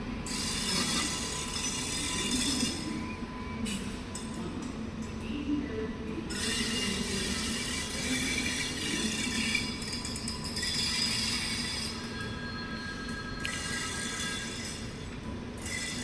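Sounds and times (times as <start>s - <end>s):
train rumbling on rails: 0.0s - 16.0s
metallic wheel squeal: 6.3s - 16.0s.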